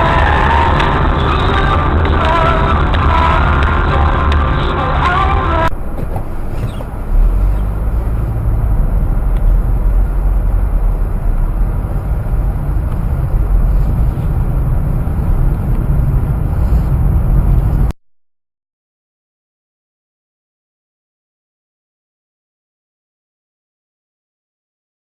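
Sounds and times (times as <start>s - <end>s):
engine and road noise rumble: 0.0s - 18.0s.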